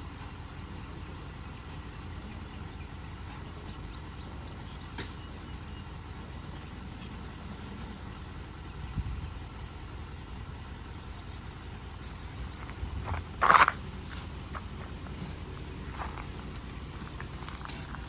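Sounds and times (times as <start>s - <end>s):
diesel truck idling: 0.0s - 18.0s.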